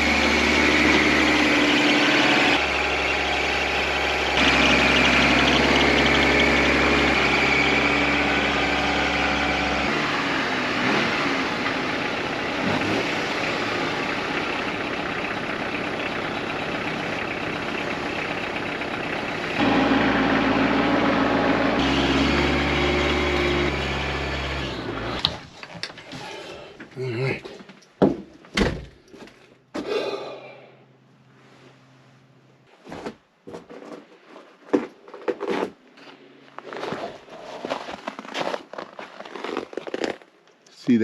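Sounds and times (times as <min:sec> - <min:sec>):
diesel tractor engine idling: 0:00.0 - 0:25.3.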